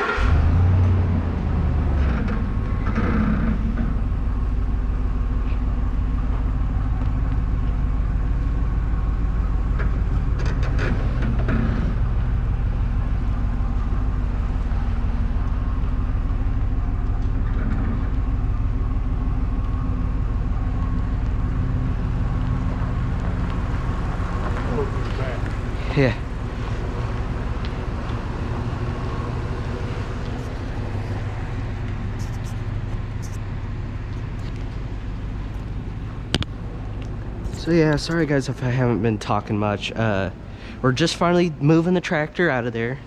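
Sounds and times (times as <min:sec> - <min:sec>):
truck engine running: 0:00.0 - 0:43.0.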